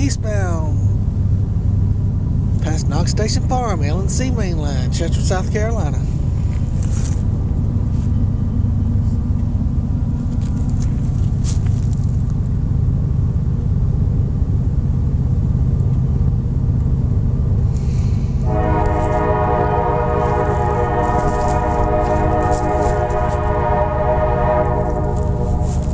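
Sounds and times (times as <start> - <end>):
diesel freight train rumbling: 0.0 - 25.9
train air horn chord: 18.4 - 25.9.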